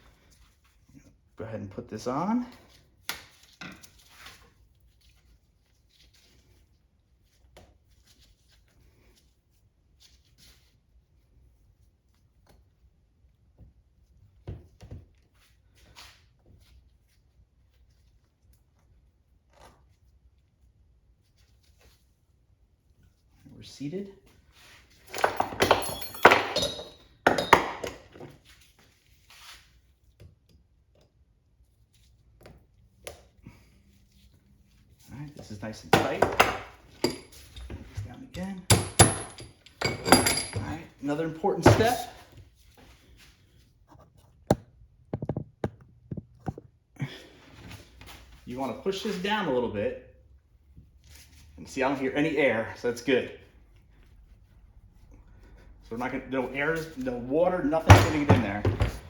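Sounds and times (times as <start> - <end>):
metal clanks and knocks: 25.1 - 28.2, 36.0 - 40.9, 57.8 - 59.0.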